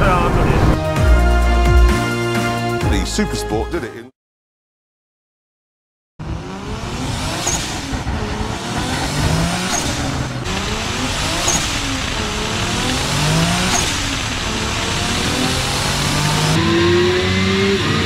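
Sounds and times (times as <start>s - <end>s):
car engine accelerating hard: 6.2s - 18.0s.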